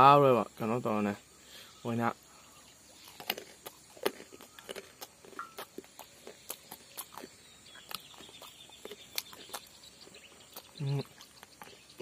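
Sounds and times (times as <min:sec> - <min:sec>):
person chewing fruit: 0:02.9 - 0:12.0.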